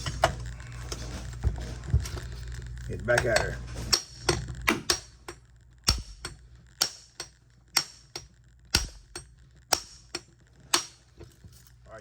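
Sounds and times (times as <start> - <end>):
hammer striking steel nut: 3.9 - 11.0.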